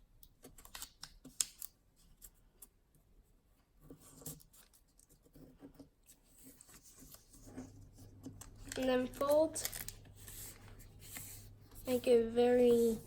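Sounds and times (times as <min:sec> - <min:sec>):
paper rustling and creasing: 0:03.9 - 0:13.0.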